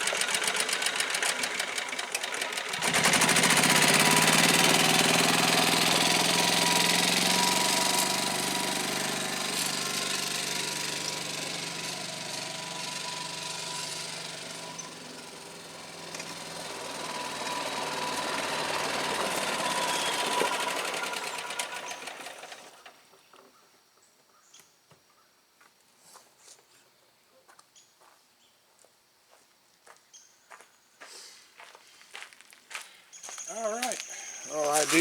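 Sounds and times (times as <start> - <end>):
golf cart engine running: 0.0 - 23.4, 34.5 - 35.0.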